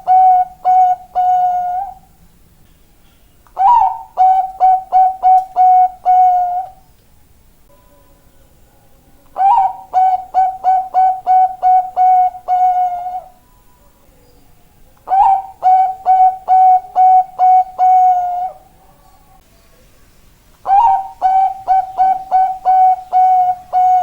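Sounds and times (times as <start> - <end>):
dove cooing: 0.0 - 2.2, 3.6 - 6.8, 9.3 - 13.4, 15.0 - 19.4, 20.6 - 24.0.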